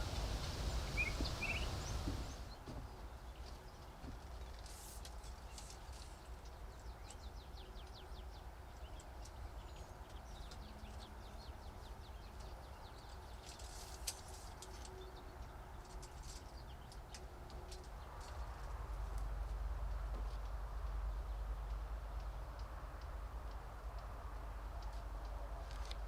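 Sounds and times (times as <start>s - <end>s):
low steady rumble: 0.0s - 2.5s
small birds chirping: 0.0s - 26.0s.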